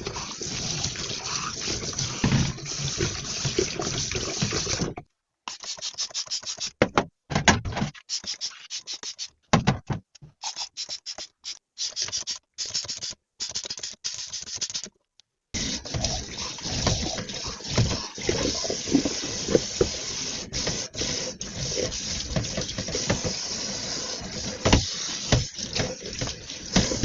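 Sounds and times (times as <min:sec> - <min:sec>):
dishes being scrubbed: 0:15.6 - 0:27.0
tap running into sink: 0:21.8 - 0:23.4, 0:24.4 - 0:27.0.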